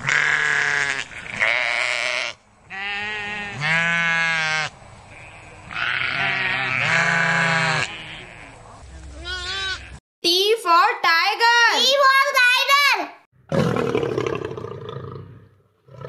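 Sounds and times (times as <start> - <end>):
sheep bleating: 0.0 - 8.6, 9.2 - 10.0.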